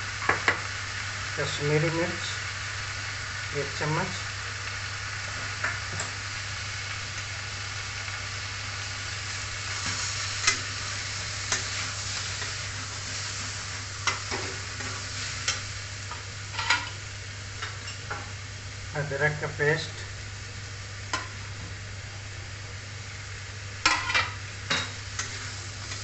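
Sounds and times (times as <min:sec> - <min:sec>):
food sizzling in hot oil: 0:00.0 - 0:26.0
metal spatula scraping a pan: 0:16.5 - 0:17.0.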